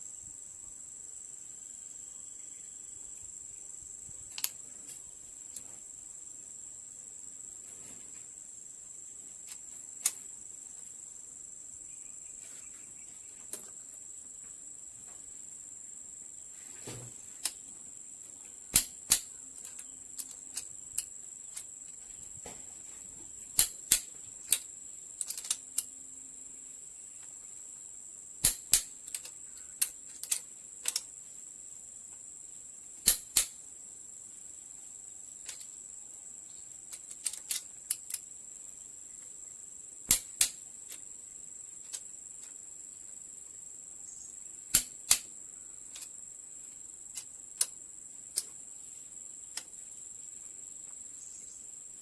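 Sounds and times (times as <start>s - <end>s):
steady high-pitched hiss: 0.0s - 52.0s
metallic clicks of hand tools: 4.3s - 5.7s, 9.4s - 10.2s, 17.4s - 17.6s, 18.7s - 21.7s, 23.6s - 25.9s, 28.4s - 31.1s, 33.0s - 33.6s, 35.4s - 35.8s, 36.9s - 38.3s, 40.1s - 41.0s, 41.8s - 42.6s, 44.7s - 45.3s, 45.9s - 46.2s, 47.1s - 48.6s.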